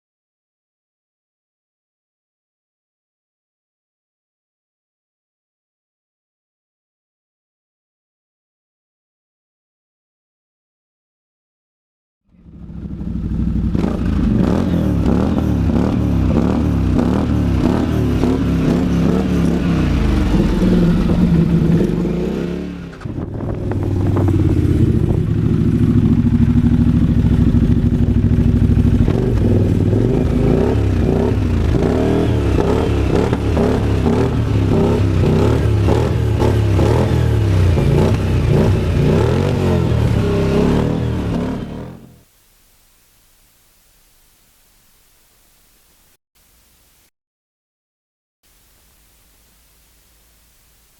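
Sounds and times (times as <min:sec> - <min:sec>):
utility vehicle engine running: 0:12.3 - 0:42.2.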